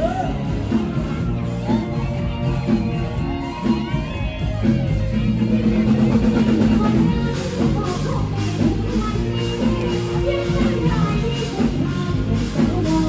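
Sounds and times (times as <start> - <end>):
bass line: 0.0 - 13.0
drums: 0.0 - 13.0
person singing: 6.1 - 13.0.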